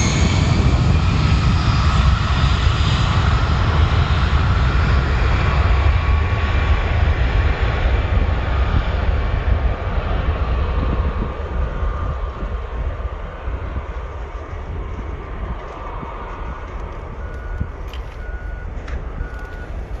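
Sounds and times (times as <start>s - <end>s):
jet engines rumbling: 0.0s - 20.0s
vehicle reversing beeper: 16.5s - 20.0s.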